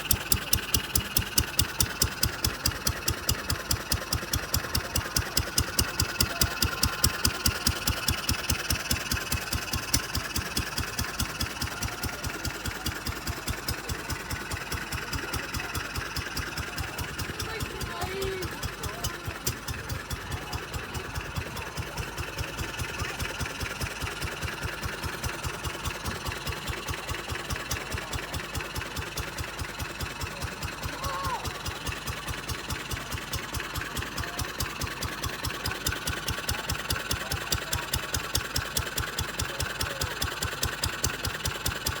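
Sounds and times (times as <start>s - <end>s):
stationary engine running: 0.0s - 42.0s.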